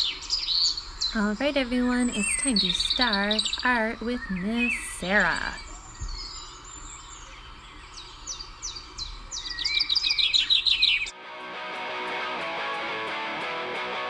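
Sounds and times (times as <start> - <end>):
songbird chirps and trill: 0.0 - 11.1
music: 11.1 - 14.0.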